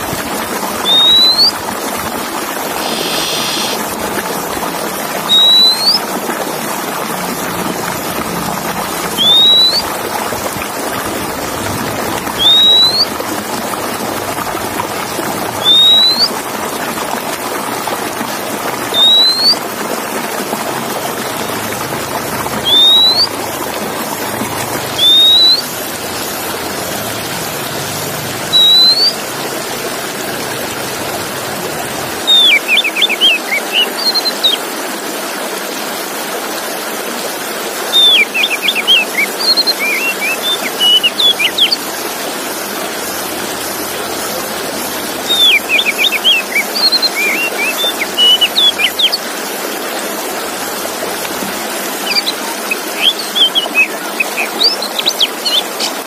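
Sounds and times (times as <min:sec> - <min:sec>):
bird whistling song: 0:00.8 - 0:01.6, 0:02.7 - 0:03.8, 0:05.2 - 0:06.1, 0:09.1 - 0:10.0, 0:12.3 - 0:13.2, 0:15.5 - 0:16.4, 0:18.8 - 0:19.6, 0:22.6 - 0:23.4, 0:24.9 - 0:26.3, 0:28.5 - 0:29.2, 0:32.2 - 0:34.6, 0:37.9 - 0:41.9, 0:45.2 - 0:49.2, 0:52.0 - 0:55.9
steady hiss: 0:02.4 - 0:04.6.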